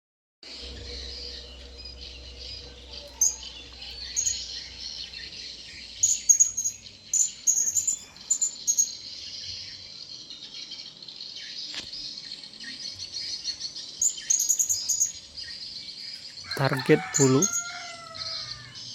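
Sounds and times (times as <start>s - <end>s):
parrots chirping: 2.2s - 9.2s.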